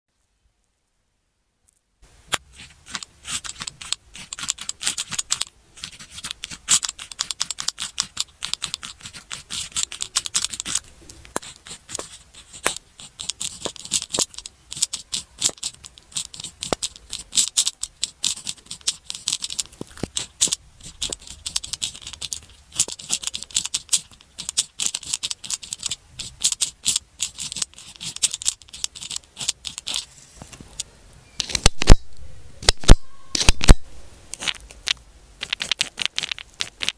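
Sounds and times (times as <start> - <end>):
pen scratching on paper: 2.3 - 30.6.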